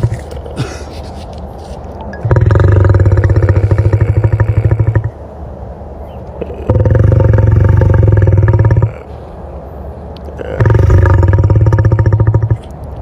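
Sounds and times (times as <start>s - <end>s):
lion growling: 2.2s - 5.2s, 6.4s - 9.1s, 10.4s - 12.7s.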